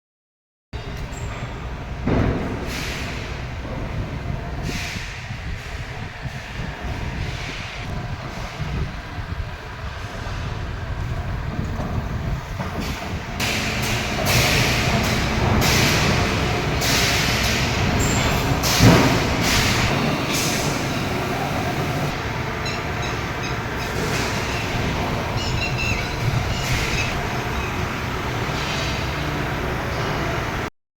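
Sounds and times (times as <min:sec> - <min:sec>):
diesel engine running: 0:00.8 - 0:30.7
air hissing bursts: 0:04.6 - 0:05.8, 0:12.8 - 0:22.2.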